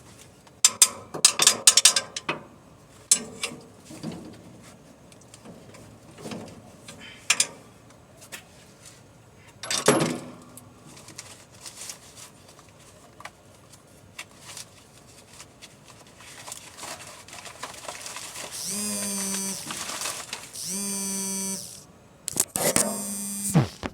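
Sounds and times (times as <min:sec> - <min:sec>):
clicks: 0:18.6 - 0:19.8, 0:20.6 - 0:23.9
electric buzz: 0:18.6 - 0:20.0, 0:20.6 - 0:23.9.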